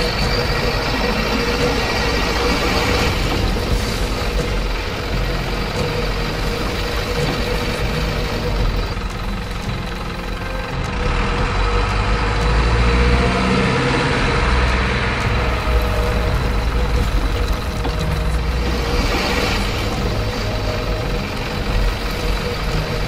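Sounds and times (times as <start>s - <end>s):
truck engine rumbling: 0.0s - 23.0s.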